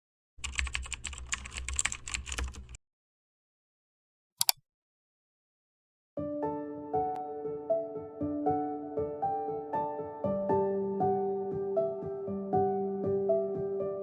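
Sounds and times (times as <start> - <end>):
typing on computer keyboard: 0.4 - 2.8
mouse double click: 4.4 - 4.6
soft piano music: 6.2 - 14.0.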